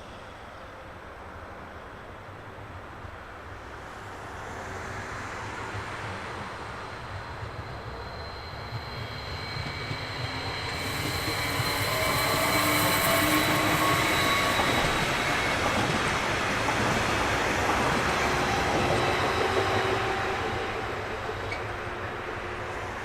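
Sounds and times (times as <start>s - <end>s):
train running on track: 0.0s - 23.0s
wheels squealing: 7.6s - 21.8s.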